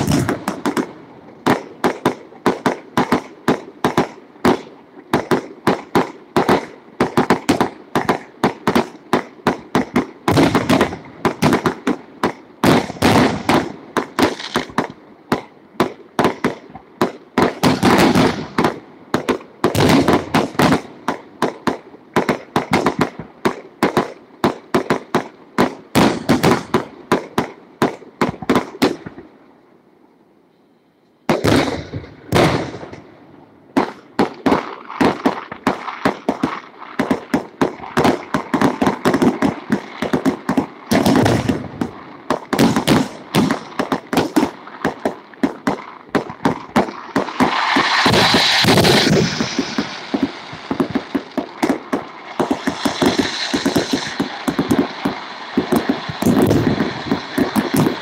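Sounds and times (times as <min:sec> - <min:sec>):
fireworks cracking and banging: 0:00.0 - 0:29.3, 0:31.2 - 0:33.1, 0:33.7 - 0:58.0.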